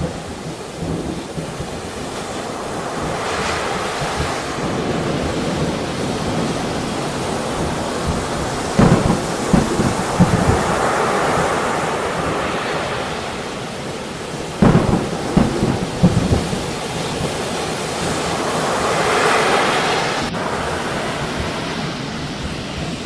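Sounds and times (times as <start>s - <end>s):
steady rain: 0.0s - 23.0s
thunder crack and rumbles: 0.0s - 23.0s.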